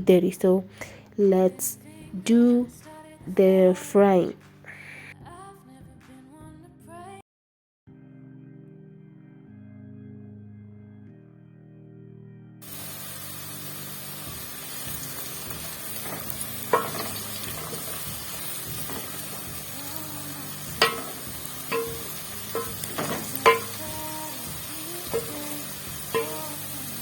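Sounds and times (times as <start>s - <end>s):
vegetables sizzling in oil: 12.6s - 27.0s
spoon clanking against pan: 15.0s - 27.0s.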